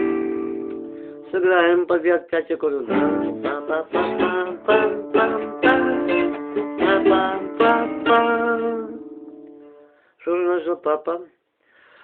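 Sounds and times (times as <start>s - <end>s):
guitar chords: 0.0s - 1.5s, 2.8s - 10.0s.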